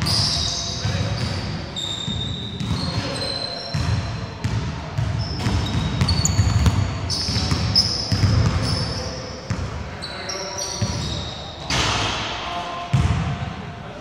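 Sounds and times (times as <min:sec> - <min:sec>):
shoe squeaks: 0:00.0 - 0:04.4, 0:05.1 - 0:11.6.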